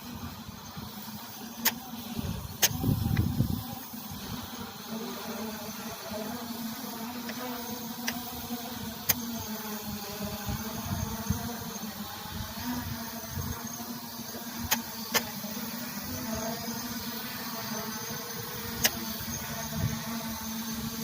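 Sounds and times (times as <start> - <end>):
drone propellers humming: 0.0 - 21.0
wind buffeting microphone: 2.2 - 4.4.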